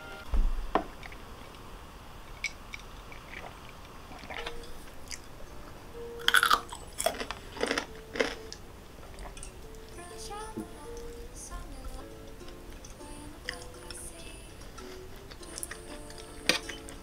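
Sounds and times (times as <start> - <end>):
chewing crunchy food: 2.4 - 5.3, 6.2 - 10.0, 14.8 - 17.0.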